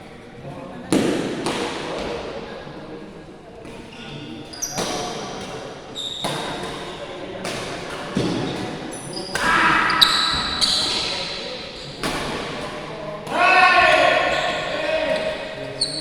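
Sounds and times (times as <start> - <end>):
shoes squeaking on court floor: 3.9 - 7.0, 8.2 - 12.8, 13.8 - 16.0.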